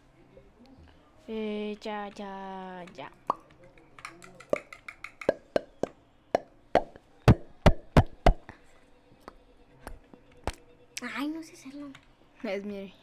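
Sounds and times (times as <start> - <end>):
sharp taps or knocks: 4.0 - 8.5.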